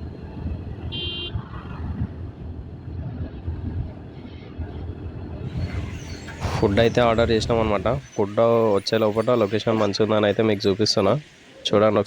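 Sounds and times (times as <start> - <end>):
wind buffeting microphone: 0.0 - 8.2
vehicle horn beep: 0.9 - 1.4.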